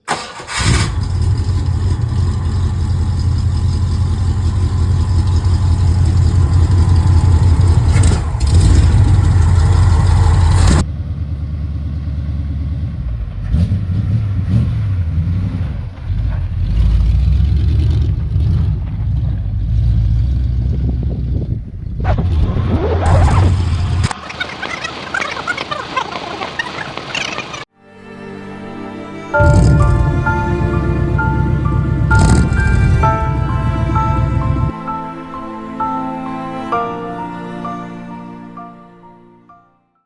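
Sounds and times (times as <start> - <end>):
car engine running: 0.9 - 13.6, 15.8 - 24.1, 29.4 - 34.7.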